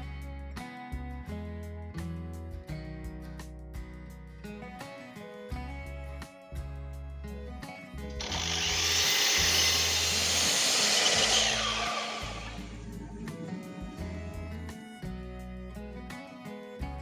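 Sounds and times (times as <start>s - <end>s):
power tool working wood: 8.2s - 13.2s.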